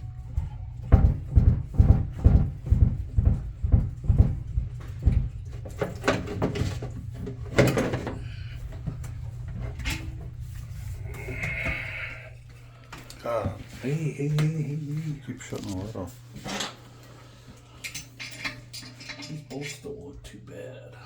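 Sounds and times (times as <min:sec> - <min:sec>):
steady low hum: 0:00.0 - 0:21.0
dull knocks: 0:00.8 - 0:06.6.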